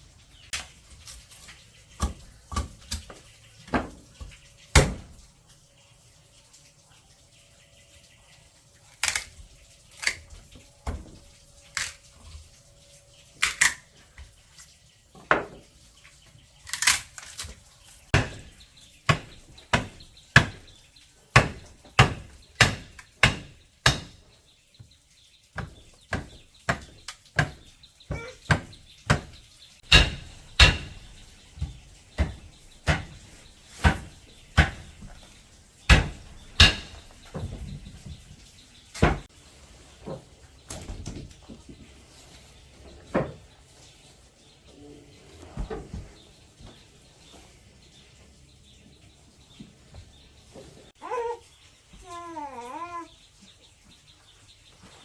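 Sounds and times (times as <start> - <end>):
sharp knocking blows: 25.6 - 31.3, 35.9 - 37.4.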